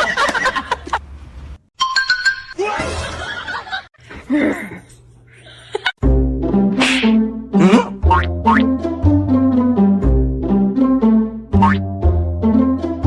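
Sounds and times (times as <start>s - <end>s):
people laughing: 2.7s - 4.0s
music with deep bass: 6.0s - 13.0s.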